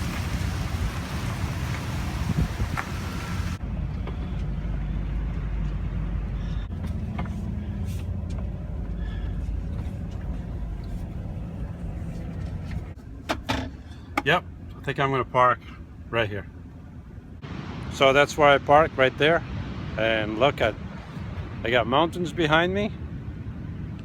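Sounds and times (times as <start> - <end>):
background hiss: 0.0 - 3.6
van engine and road rumble: 0.0 - 24.0.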